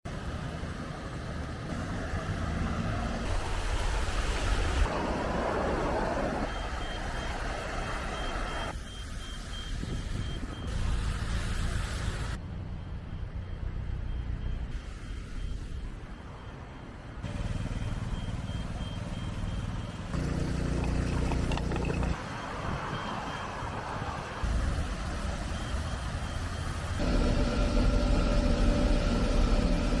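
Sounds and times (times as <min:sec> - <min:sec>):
rain: 0:00.1 - 0:09.8, 0:10.5 - 0:12.4, 0:22.3 - 0:27.0
traffic on a wet street: 0:00.1 - 0:30.0
reversing alarm beeps: 0:06.4 - 0:11.0, 0:12.8 - 0:28.0
vehicle engine running low: 0:17.3 - 0:22.2
vehicle engine running: 0:20.1 - 0:22.2.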